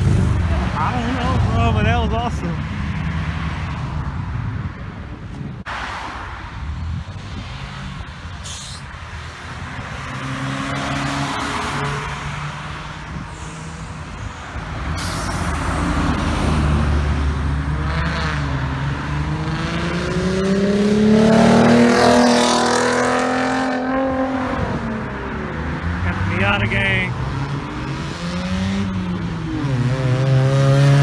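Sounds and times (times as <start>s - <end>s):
car accelerating: 0.0s - 31.0s
cars driving past: 0.0s - 31.0s.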